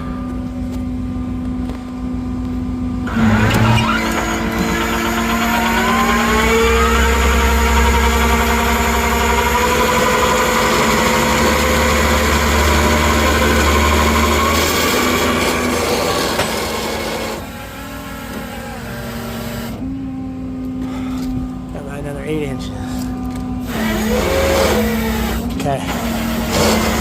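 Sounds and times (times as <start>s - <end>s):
tow truck engine idling and revving: 0.0s - 27.0s
winch pulling a car: 23.6s - 27.0s.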